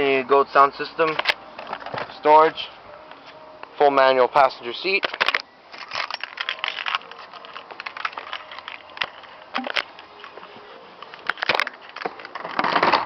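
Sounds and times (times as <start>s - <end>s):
crackling rustle: 5.0s - 13.0s.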